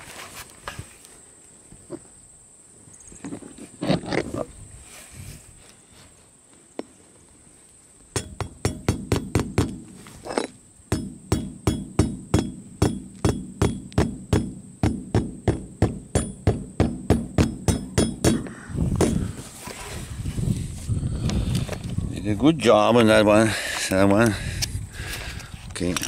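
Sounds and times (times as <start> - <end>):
hammer driving nails: 8.2 - 9.9, 10.9 - 19.3.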